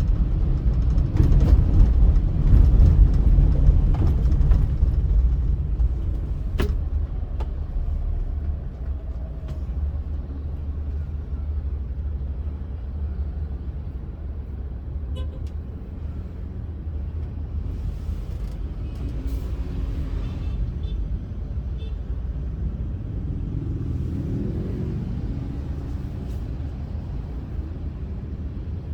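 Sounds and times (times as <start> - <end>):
car driving on highway: 0.0 - 28.9.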